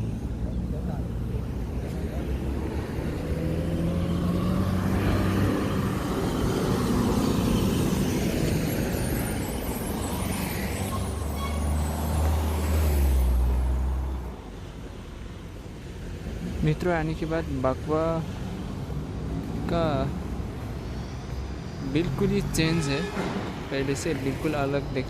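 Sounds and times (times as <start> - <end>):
street traffic: 0.0 - 25.0
large vehicle engine passing: 1.7 - 14.2.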